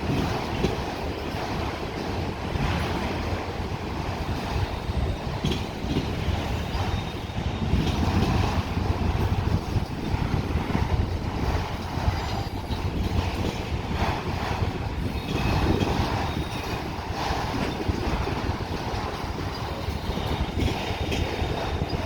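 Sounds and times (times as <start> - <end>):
train wheels rumbling on rail: 0.0 - 22.0
high wheel squeal: 6.6 - 7.8.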